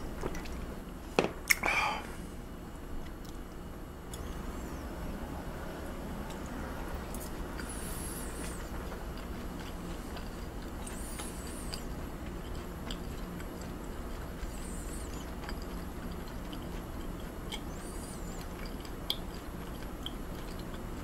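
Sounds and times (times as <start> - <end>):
steady low hum: 0.0 - 21.0
wet chewing and smacking: 7.1 - 21.0.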